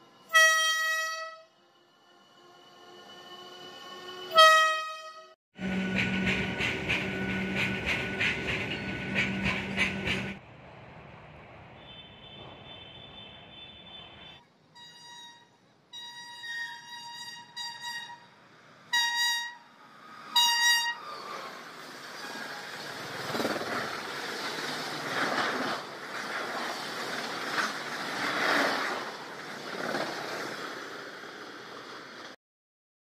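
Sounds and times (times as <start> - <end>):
train horn toots and blasts: 0.2 - 1.6, 4.1 - 6.0, 11.8 - 19.7, 20.3 - 21.1
train rushing clatter over rails: 5.6 - 13.3, 20.0 - 32.4.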